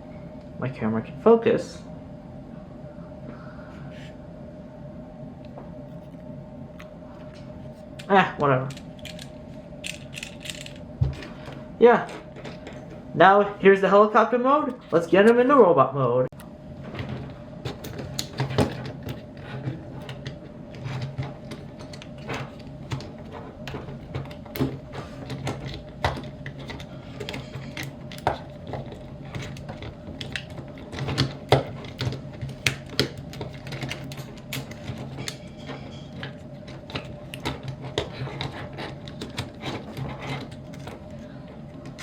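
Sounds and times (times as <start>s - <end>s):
steady low hum: 0.0s - 42.0s
plastic toy parts clicking: 8.7s - 10.8s.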